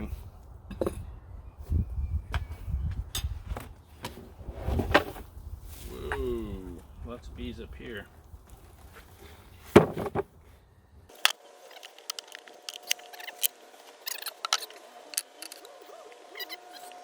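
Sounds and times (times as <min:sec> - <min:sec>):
scratchy clicks and scrapes: 0:11.1 - 0:15.8
honeybees humming: 0:11.1 - 0:17.0.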